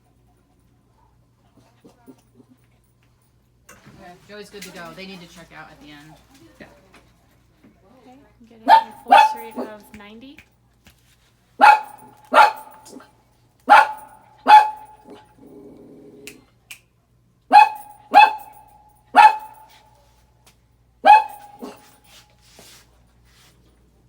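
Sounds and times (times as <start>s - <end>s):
dog barking: 8.6s - 9.9s, 11.6s - 15.4s, 17.5s - 19.9s, 21.0s - 22.1s.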